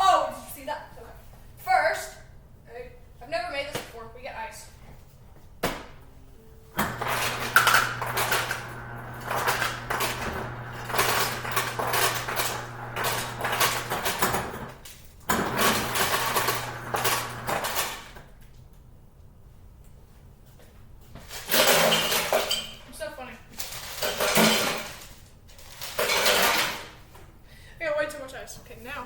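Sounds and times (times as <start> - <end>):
ice dispenser motor hum: 6.7 - 18.3
ice cubes clattering into glass: 25.8 - 26.9.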